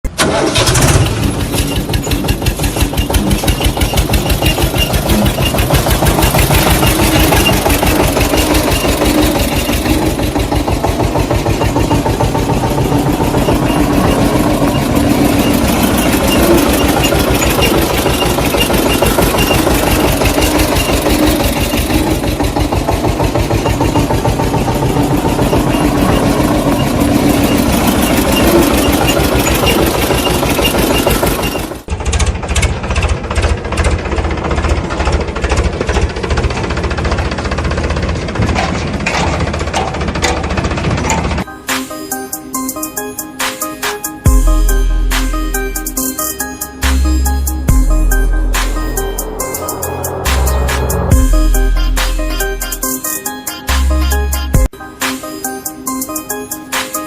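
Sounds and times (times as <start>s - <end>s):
engine idling: 0.1s - 41.5s.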